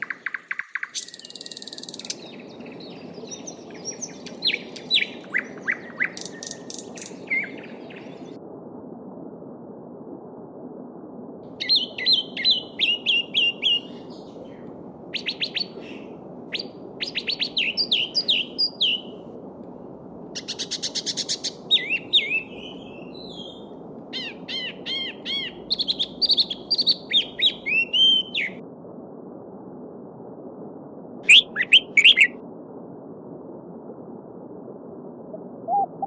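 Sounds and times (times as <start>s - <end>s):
songbirds singing: 0.0s - 8.4s, 11.6s - 19.2s, 20.4s - 28.6s.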